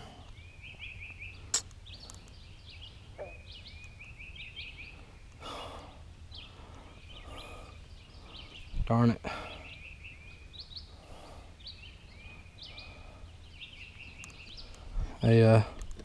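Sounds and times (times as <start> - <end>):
bird chirping: 0.0 - 16.0
sharp click: 1.5 - 2.4.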